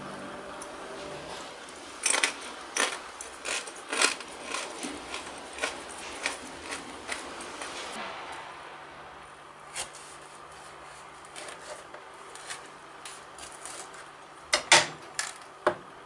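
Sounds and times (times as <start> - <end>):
tortilla chip crunching: 2.0 - 7.8.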